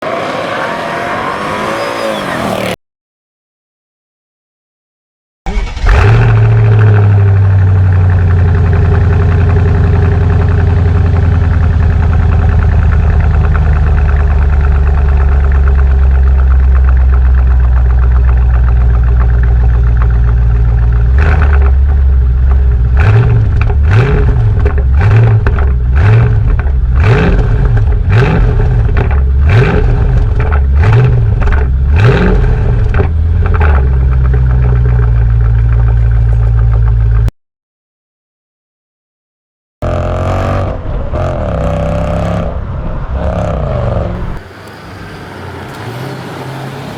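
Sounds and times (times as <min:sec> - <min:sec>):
engine revving in throttle blips: 0:05.5 - 0:37.3, 0:39.8 - 0:46.9
car engine idling loudly: 0:05.6 - 0:37.3.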